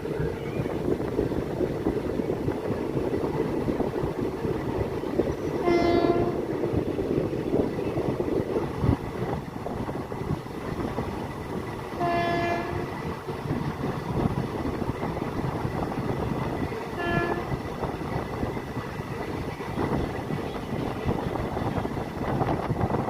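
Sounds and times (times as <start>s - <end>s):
train rumbling and rattling: 0.0s - 23.0s
train horn blasts: 5.6s - 6.4s, 12.0s - 13.0s, 16.9s - 17.6s.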